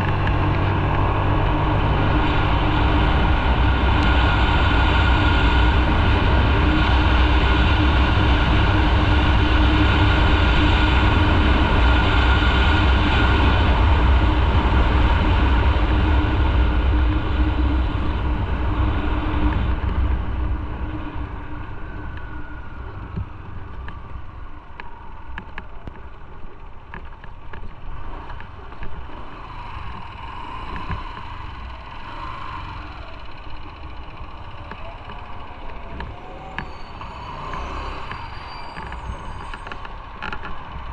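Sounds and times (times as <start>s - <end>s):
motorcycle engine: 0.0s - 15.1s, 28.4s - 40.9s.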